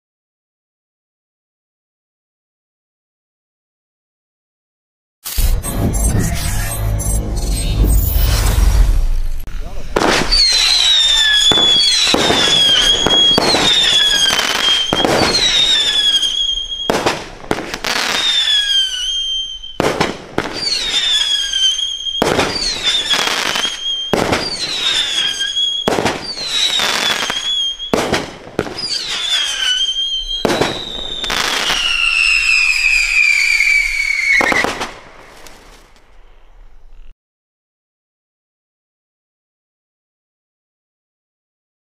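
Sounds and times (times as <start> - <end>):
falling firework whistle: 7.5 - 35.9
firework cracks: 9.0 - 36.2.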